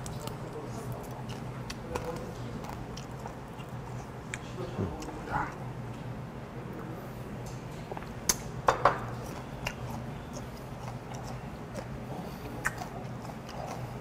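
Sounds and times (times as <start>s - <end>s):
crunchy chewing: 0.0s - 5.7s, 9.1s - 14.0s.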